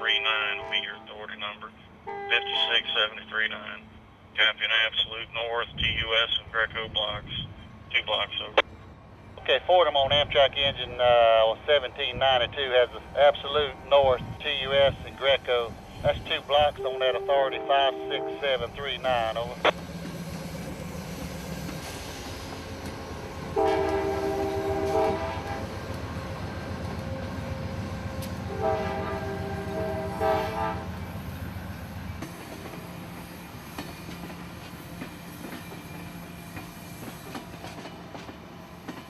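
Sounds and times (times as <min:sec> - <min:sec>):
locomotive multi-note horn: 0:00.0 - 0:01.3, 0:02.0 - 0:03.0, 0:16.6 - 0:19.6, 0:23.5 - 0:25.8, 0:28.4 - 0:31.1.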